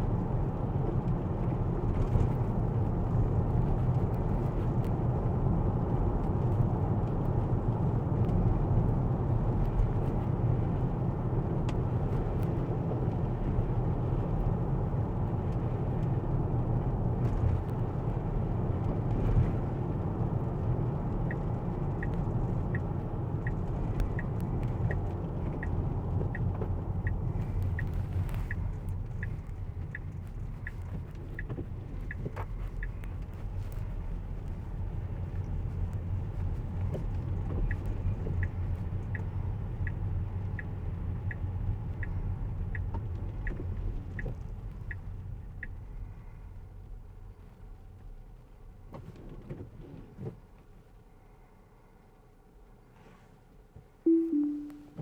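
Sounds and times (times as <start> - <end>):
road and tyre rumble: 0.0 - 54.0
turn signal ticking: 16.8 - 46.1, 54.1 - 55.0.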